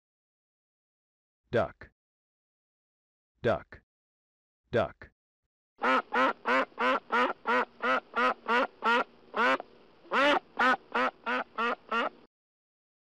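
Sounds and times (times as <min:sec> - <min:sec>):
duck quacking: 0:05.8 - 0:12.2.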